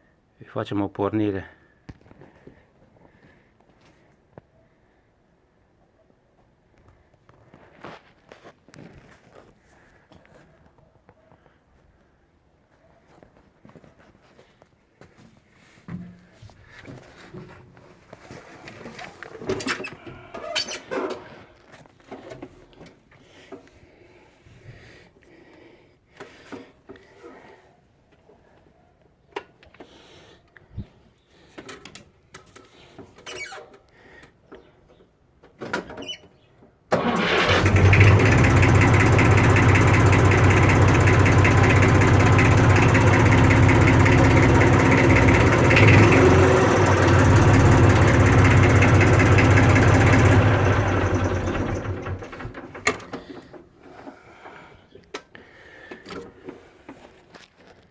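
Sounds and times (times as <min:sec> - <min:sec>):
tractor diesel engine running: 0:36.9 - 0:53.4.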